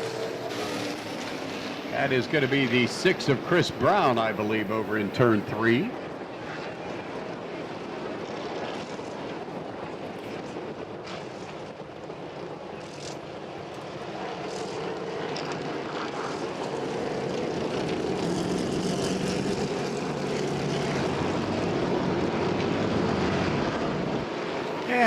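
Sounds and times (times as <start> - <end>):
race car engines droning: 0.0 - 7.8, 14.4 - 25.0.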